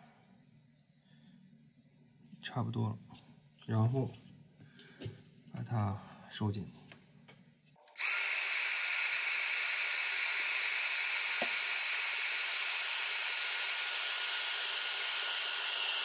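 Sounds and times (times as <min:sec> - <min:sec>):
heat gun blowing: 0:07.9 - 0:16.0.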